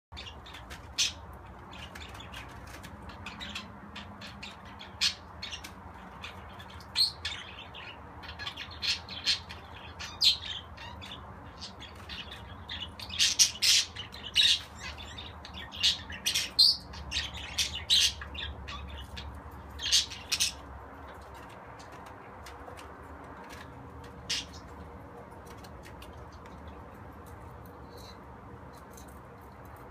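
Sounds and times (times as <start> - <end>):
budgerigar chirping and squawking: 3.1 - 20.6.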